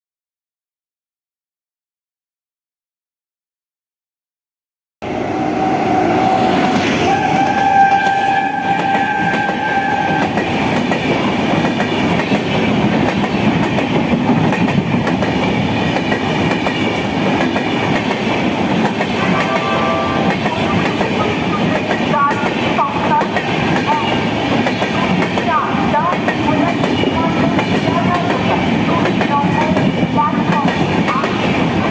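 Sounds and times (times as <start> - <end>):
train horn: 5.3 - 10.4, 19.2 - 20.9
train wheels rumbling on rails: 5.4 - 31.9.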